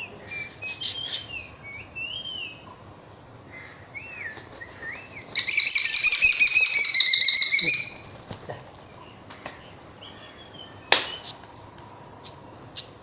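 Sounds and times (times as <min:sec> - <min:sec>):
bird calling with whistled notes: 0:00.0 - 0:02.6, 0:03.5 - 0:08.2, 0:09.4 - 0:11.4
harsh drawn-out bird call: 0:03.5 - 0:08.2.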